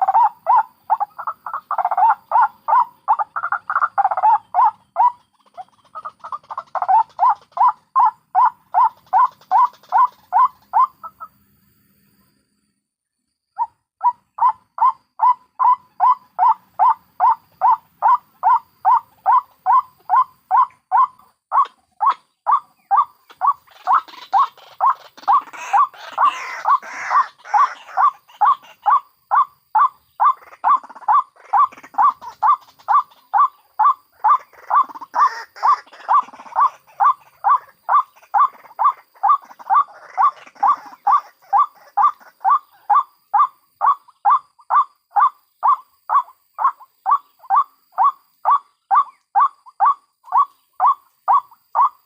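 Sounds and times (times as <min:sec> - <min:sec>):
rough noisy bird calls: 0:00.0 - 0:52.0.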